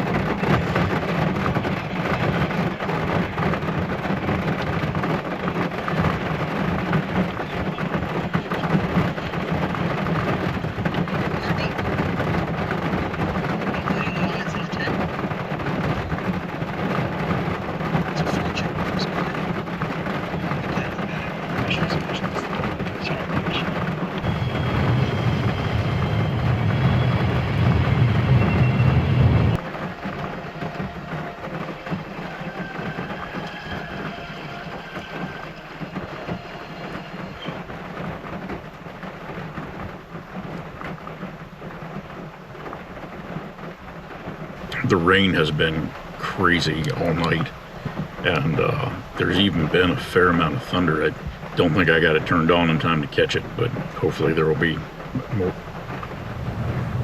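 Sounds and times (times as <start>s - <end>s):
heavy rain on vehicle roof: 0.0s - 57.0s
low rumble: 15.9s - 40.6s, 54.8s - 57.0s.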